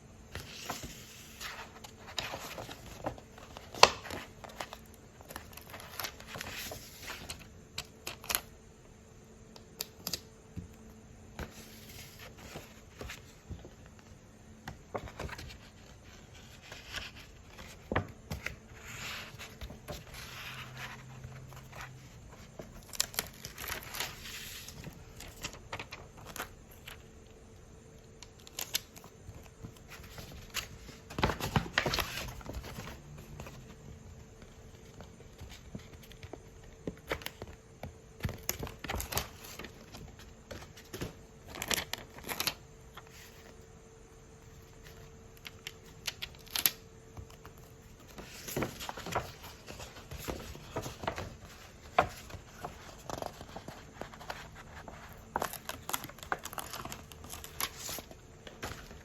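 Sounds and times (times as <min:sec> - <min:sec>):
faint steady hum: 0:00.0 - 0:59.0
packaging crinkling and rustling: 0:47.4 - 0:59.0.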